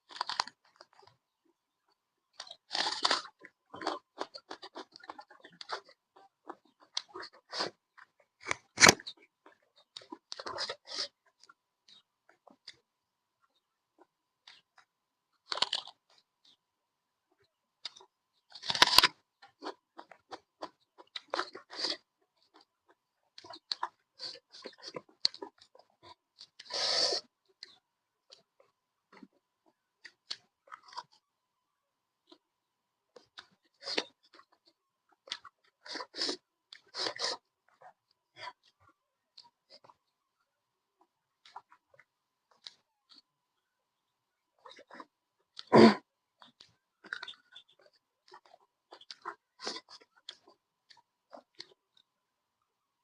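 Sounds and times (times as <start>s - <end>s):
quick chewing crunches: 0.0s - 1.2s, 2.3s - 12.9s, 14.5s - 16.6s, 17.8s - 31.3s, 33.2s - 40.1s, 41.4s - 43.3s, 44.6s - 52.0s
crunching bite: 0.1s - 1.0s, 2.4s - 9.2s, 15.4s - 16.0s, 17.8s - 22.7s, 44.6s - 50.5s.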